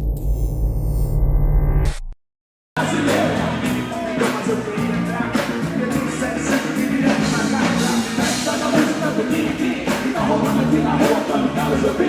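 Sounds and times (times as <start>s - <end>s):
live band playing: 2.8s - 12.0s.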